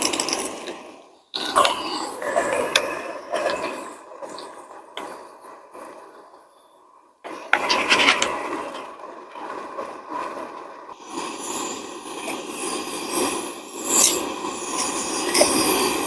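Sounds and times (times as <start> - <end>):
utensil scraping cooking pot: 7.3 - 9.7.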